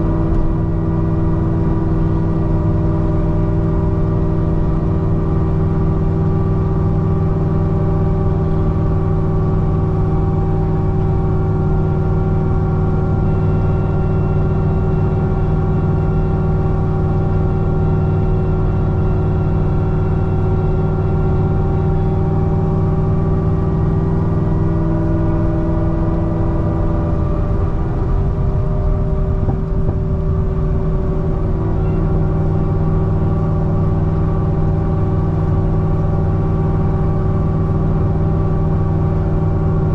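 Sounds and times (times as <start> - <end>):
car engine droning: 0.0 - 39.9.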